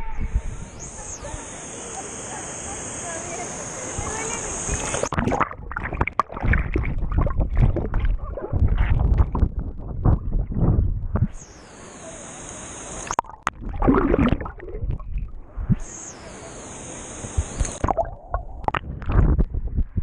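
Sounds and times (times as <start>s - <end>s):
water sloshing and splashing: 5.1s - 10.4s.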